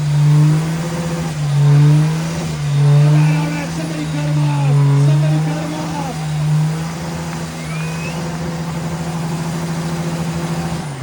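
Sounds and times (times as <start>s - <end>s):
diesel engine high rpm drone: 0.0s - 11.0s
short rising whistle: 5.8s - 9.2s.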